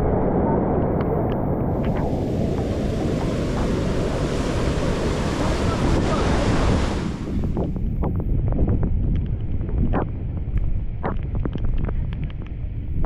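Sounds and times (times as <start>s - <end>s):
wind buffeting microphone: 0.0s - 13.0s
rushing floodwater: 1.7s - 7.6s.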